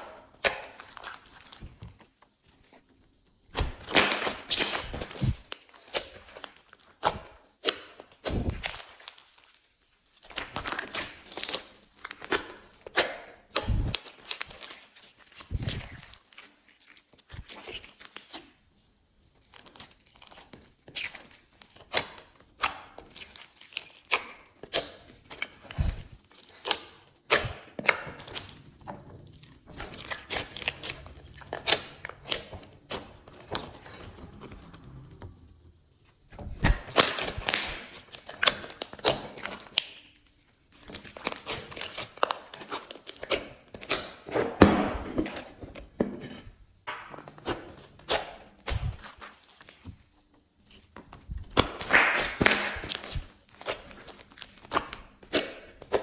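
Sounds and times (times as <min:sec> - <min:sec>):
slime squished by hand: 0:36.3 - 0:45.6, 0:51.2 - 0:56.0
sticky crackles and pops: 0:36.5 - 0:40.2, 0:51.3 - 0:56.0.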